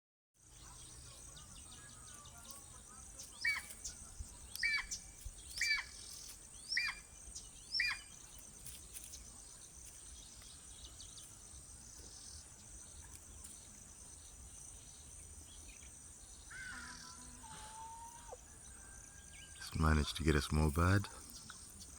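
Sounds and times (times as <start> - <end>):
high insect buzz: 0.4 - 18.5
eagle calling: 1.8 - 8.2, 19.6 - 21.6.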